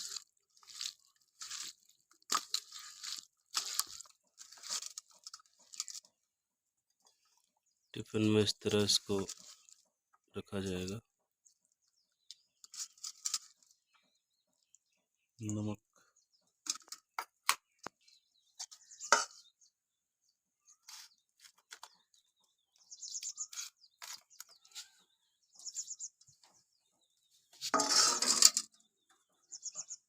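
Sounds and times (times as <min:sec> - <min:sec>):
high bird chirps: 0:17.5 - 0:19.8, 0:20.6 - 0:27.7, 0:28.6 - 0:30.0.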